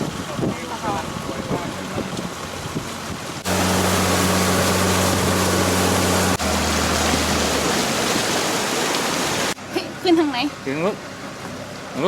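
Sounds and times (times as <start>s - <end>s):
rushing river water: 0.0s - 12.0s
low motor hum: 2.9s - 8.5s.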